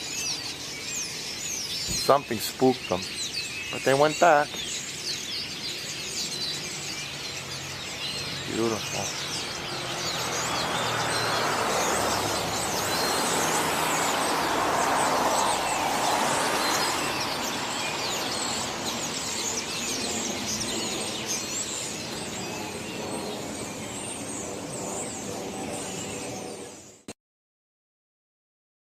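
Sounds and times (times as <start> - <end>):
flock of small birds chirping: 0.0 - 27.1
passing car rushing by: 7.3 - 20.6.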